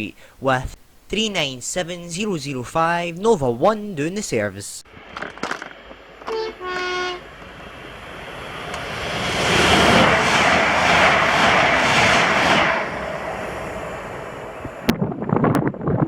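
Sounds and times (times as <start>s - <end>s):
train passing at speed: 4.9s - 15.4s
two-tone train horn: 6.2s - 8.0s.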